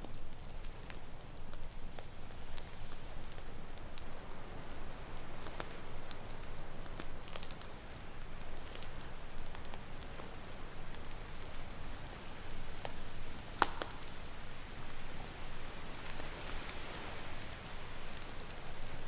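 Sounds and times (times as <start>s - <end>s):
campfire crackling: 0.0s - 19.0s
ocean waves: 11.2s - 19.0s.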